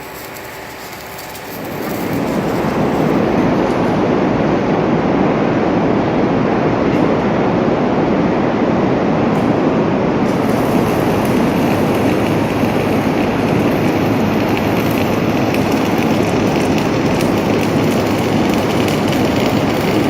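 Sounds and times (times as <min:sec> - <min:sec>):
arc welding crackling sizzle: 0:00.0 - 0:04.8, 0:09.3 - 0:20.0.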